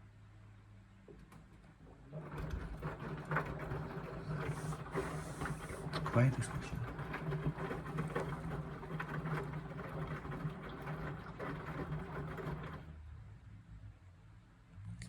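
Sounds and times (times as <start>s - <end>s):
washing machine drum turning: 1.6s - 12.9s.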